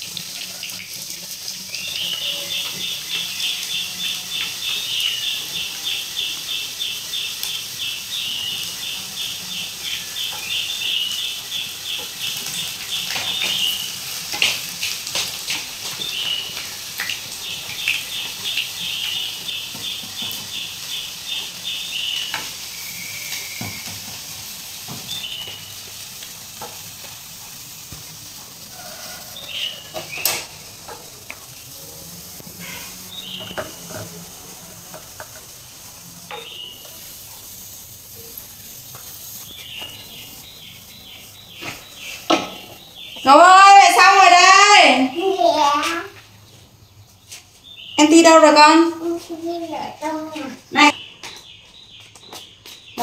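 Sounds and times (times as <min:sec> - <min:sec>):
sausages sizzling in hot oil: 0:00.0 - 0:53.0
high-pitched chirping trill: 0:17.5 - 0:24.0, 0:36.2 - 0:45.8.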